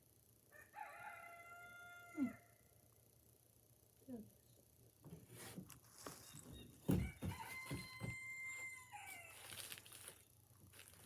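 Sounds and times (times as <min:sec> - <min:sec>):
rooster crowing: 0:00.5 - 0:02.6, 0:06.9 - 0:09.7.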